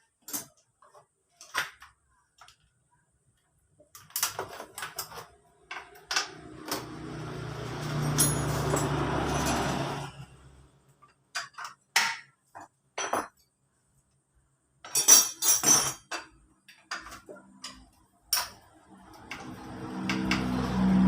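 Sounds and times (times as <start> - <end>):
metal tools clinking: 7.8 - 10.2, 14.8 - 18.7.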